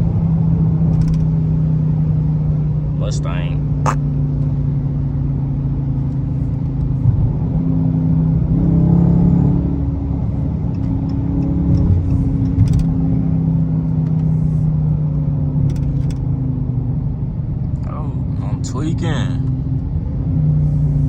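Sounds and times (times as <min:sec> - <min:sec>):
car engine droning: 0:04.3 - 0:21.0.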